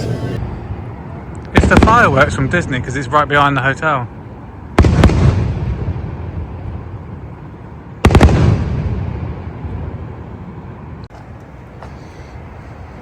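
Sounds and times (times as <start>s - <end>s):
fireworks rolling rumble: 0.0s - 3.4s
fireworks bangs: 1.5s - 2.5s, 4.8s - 6.5s, 8.0s - 10.0s.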